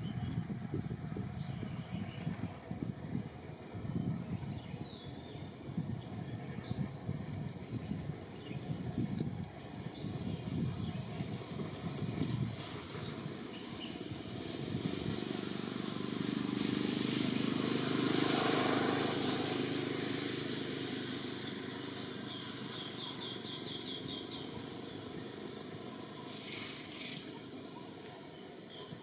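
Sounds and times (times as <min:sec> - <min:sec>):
vehicle passing by: 0:07.2 - 0:27.9.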